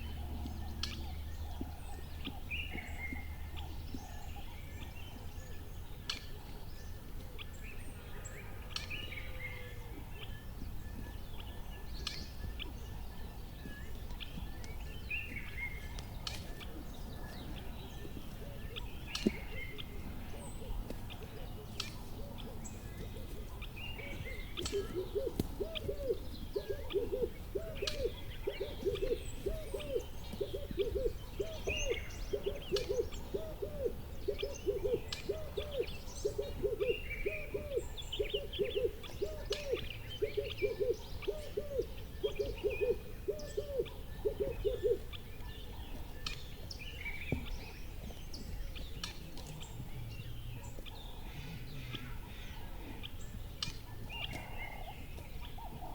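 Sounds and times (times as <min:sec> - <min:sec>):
small birds chirping: 0:00.0 - 0:55.9
owl hooting: 0:24.7 - 0:45.1.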